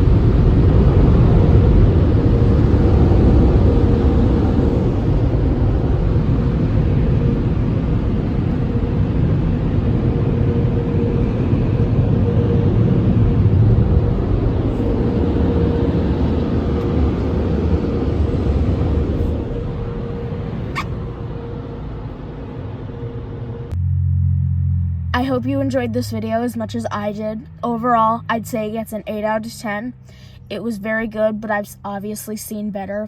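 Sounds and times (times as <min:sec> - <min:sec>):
car wash machinery rushing: 0:00.0 - 0:23.2
steady hum: 0:00.0 - 0:23.8.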